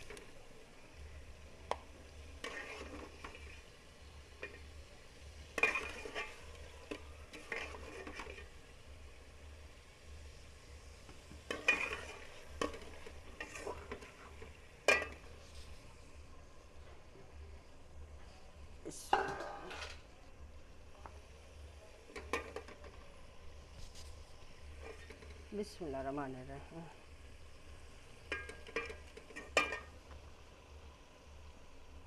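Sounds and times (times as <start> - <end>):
faint sizzle: 0.0 - 32.0
spoon scraping a cooking pot: 2.4 - 3.6, 5.6 - 8.6, 11.3 - 15.8.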